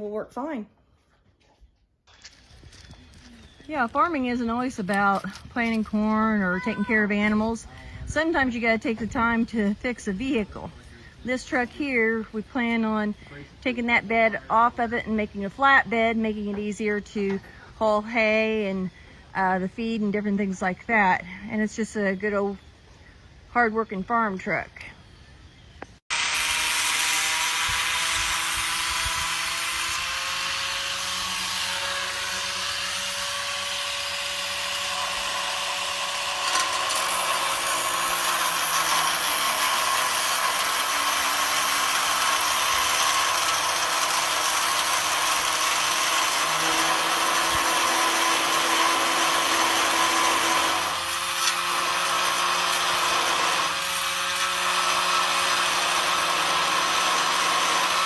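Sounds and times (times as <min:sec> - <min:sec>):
power tool whining under load: 0:26.1 - 0:58.0.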